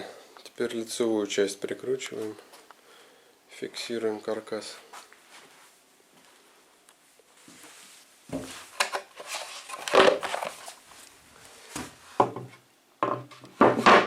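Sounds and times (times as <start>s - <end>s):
wooden parts knocking and scraping: 8.3s - 10.8s, 11.8s - 14.0s.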